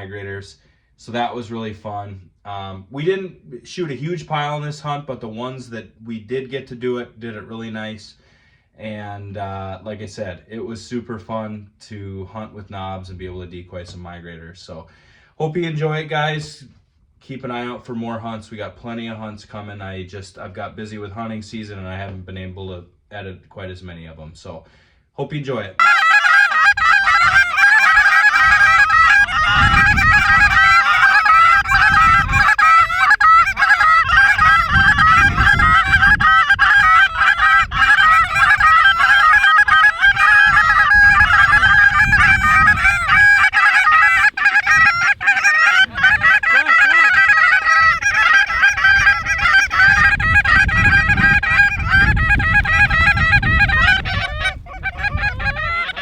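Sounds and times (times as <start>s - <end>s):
geese honking: 25.8s - 56.0s
wind rumbling on microphone: 26.6s - 56.0s.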